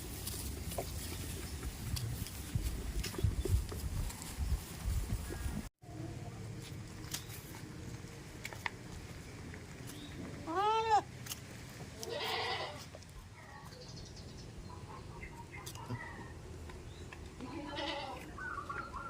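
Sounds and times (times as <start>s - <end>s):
goat bleating: 10.4s - 11.1s, 12.0s - 13.0s, 17.4s - 18.3s.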